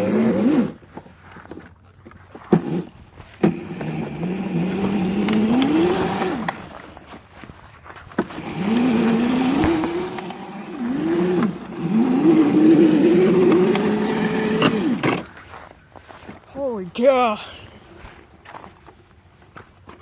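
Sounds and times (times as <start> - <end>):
mini bike engine revving: 0.0 - 1.6, 2.3 - 7.3, 8.1 - 16.2.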